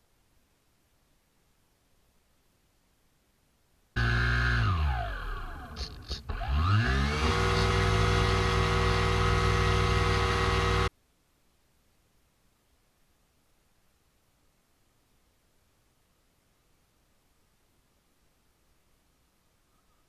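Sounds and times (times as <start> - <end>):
motor whine: 4.0 - 10.9.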